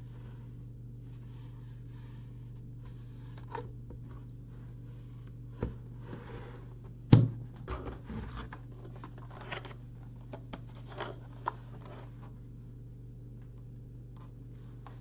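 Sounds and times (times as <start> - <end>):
packaging rustling and scraping: 8.0 - 12.2.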